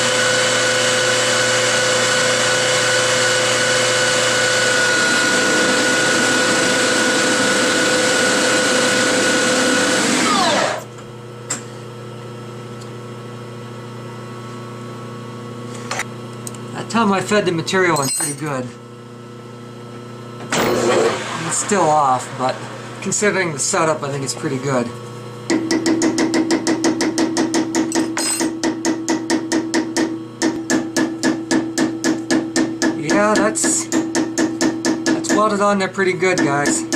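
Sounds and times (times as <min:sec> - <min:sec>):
lathe spinning down: 0:00.0 - 0:10.9, 0:20.4 - 0:24.7.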